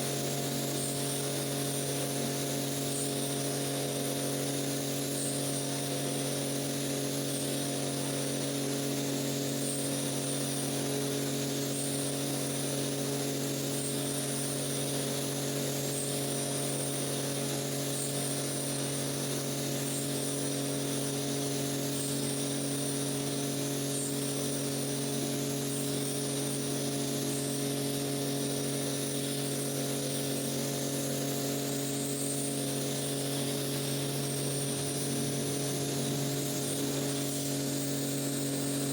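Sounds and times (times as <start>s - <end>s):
cleaning machine motor hum: 0.0s - 38.9s.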